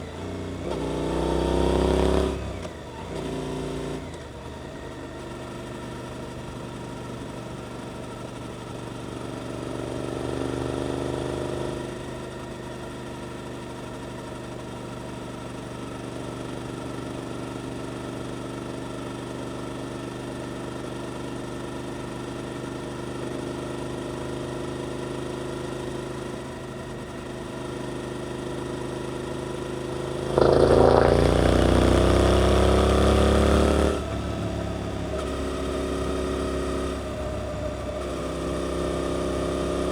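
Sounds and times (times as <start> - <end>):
motorcycle engine revving: 0.1 - 4.2, 24.3 - 39.9.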